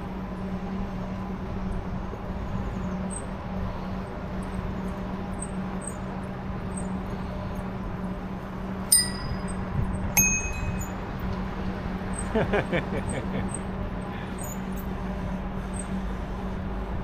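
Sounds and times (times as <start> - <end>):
electric bike motor hum: 0.0 - 17.0
road and wind noise: 0.0 - 17.0
bicycle bells ringing: 8.9 - 9.6, 10.2 - 11.1.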